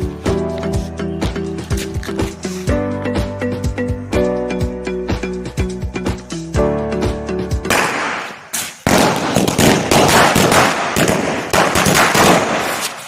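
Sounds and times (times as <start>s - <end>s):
firecrackers popping: 7.7s - 13.0s.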